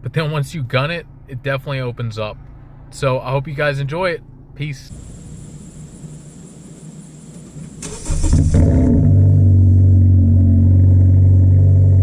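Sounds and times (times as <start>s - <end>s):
starter motor cranking: 7.6s - 8.6s.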